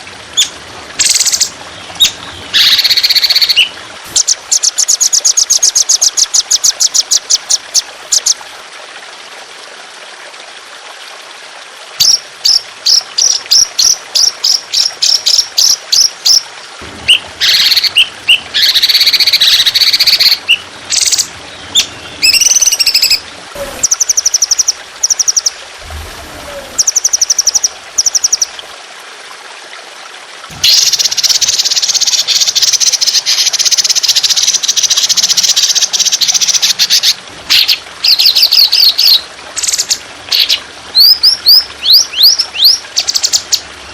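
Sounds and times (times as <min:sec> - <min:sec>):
trickling water: 0:00.0 - 0:43.9
songbird singing: 0:00.3 - 0:08.4, 0:12.0 - 0:16.4, 0:17.1 - 0:28.6, 0:30.5 - 0:43.7
harsh rattling bird call: 0:00.4 - 0:07.0, 0:17.1 - 0:23.2, 0:30.6 - 0:43.6.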